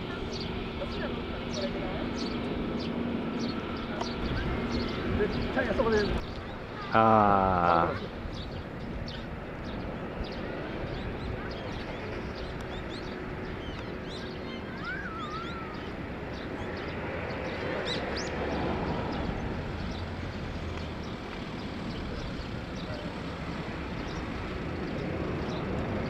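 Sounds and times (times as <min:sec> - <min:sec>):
distant jet engines rumbling: 0:00.0 - 0:26.0
small birds chirping: 0:00.0 - 0:26.0
wavering whistled bird call: 0:14.1 - 0:15.9.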